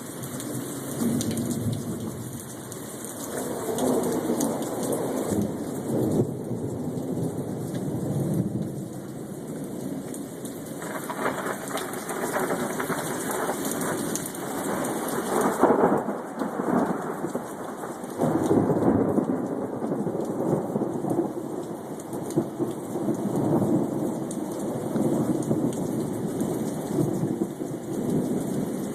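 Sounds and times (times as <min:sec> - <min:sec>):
rain falling: 0:00.0 - 0:28.9
rumbling thunder: 0:01.0 - 0:02.5, 0:03.3 - 0:09.0, 0:10.8 - 0:14.0, 0:14.6 - 0:21.8.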